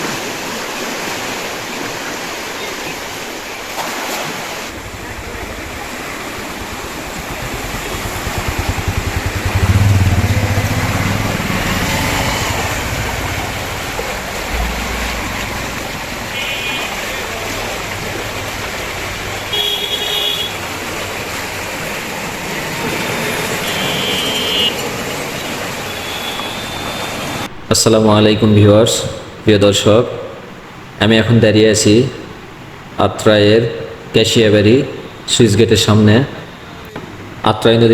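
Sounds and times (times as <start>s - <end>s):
water rushing from sluice gate: 0.0s - 27.5s
vehicle engine passing: 4.7s - 24.2s
short horn toots: 19.5s - 20.6s.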